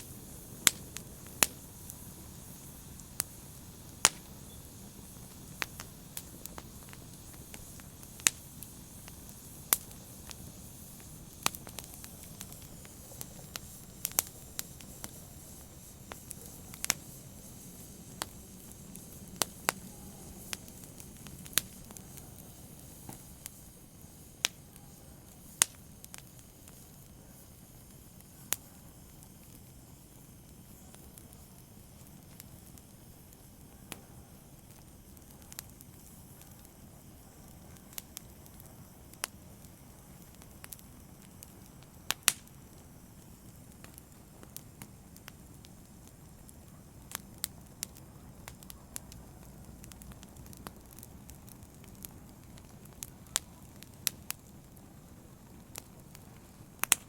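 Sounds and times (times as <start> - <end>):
open fire crackling: 0.0 - 57.0
soft steady hiss: 0.0 - 57.0.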